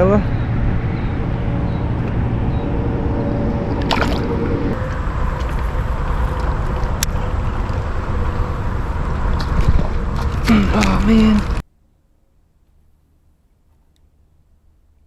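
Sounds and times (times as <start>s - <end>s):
steady low rumble: 0.0s - 11.7s
river water sloshing and gurgling: 3.7s - 11.6s.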